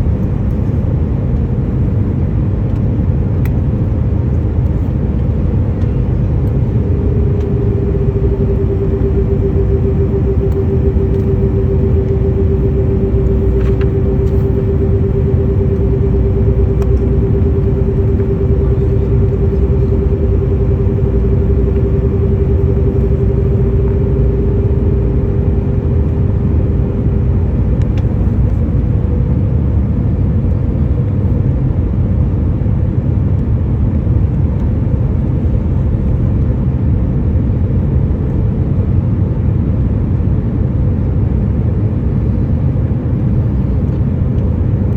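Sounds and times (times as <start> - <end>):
jet engines rumbling: 0.0 - 31.5
steady hum: 0.0 - 44.9.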